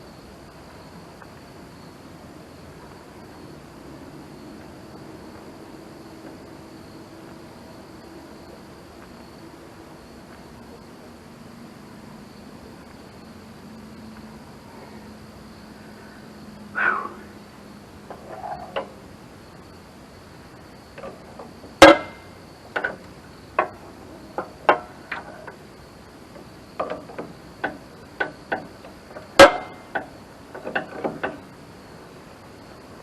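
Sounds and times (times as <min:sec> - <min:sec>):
metal clanks: 0:21.0 - 0:25.6, 0:26.4 - 0:31.5.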